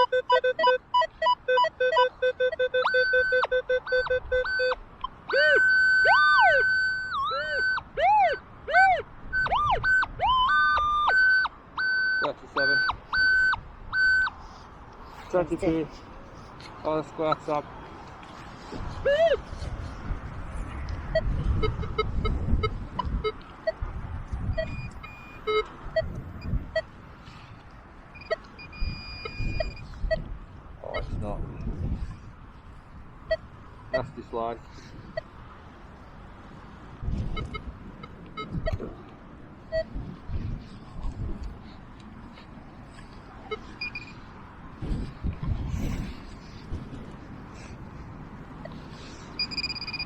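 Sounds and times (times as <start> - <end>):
metal detector short low beeps: 0.0 - 4.8, 9.4 - 14.3, 24.5 - 26.8, 28.2 - 30.3, 43.5 - 44.2, 49.4 - 50.0
metal detector chirps: 0.0 - 14.4, 19.0 - 19.4, 24.5 - 26.9, 28.1 - 30.3, 43.5 - 44.2, 49.4 - 50.0
wind rumbling on microphone: 2.8 - 11.9, 12.8 - 50.0.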